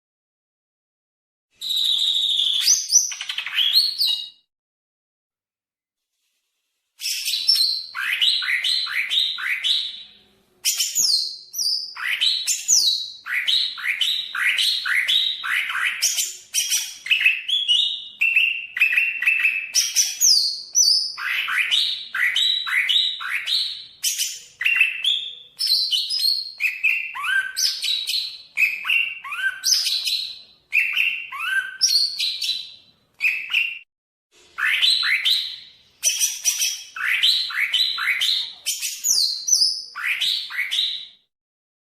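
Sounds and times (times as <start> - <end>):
bird singing whistled notes: 1.6 - 4.5, 7.0 - 33.9, 34.6 - 41.3.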